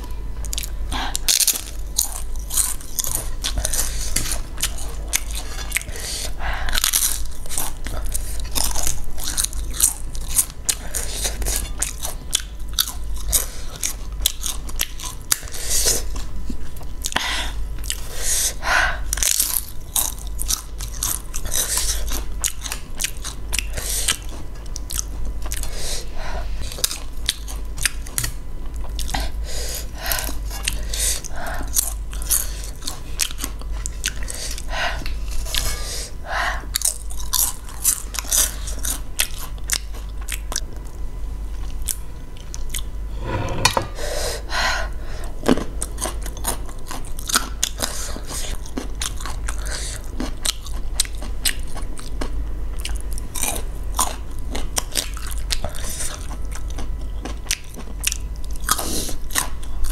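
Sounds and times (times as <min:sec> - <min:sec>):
wet chewing and smacking: 0:06.7 - 0:17.2, 0:45.6 - 0:59.9.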